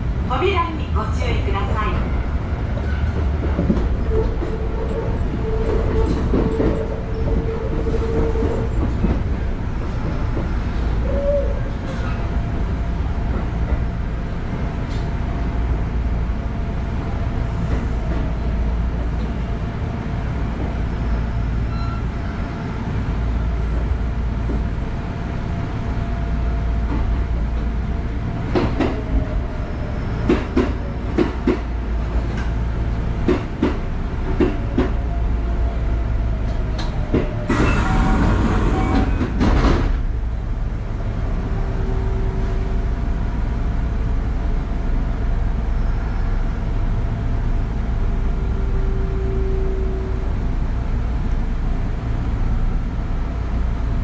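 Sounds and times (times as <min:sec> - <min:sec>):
electric train rumble: 0:00.0 - 0:54.0.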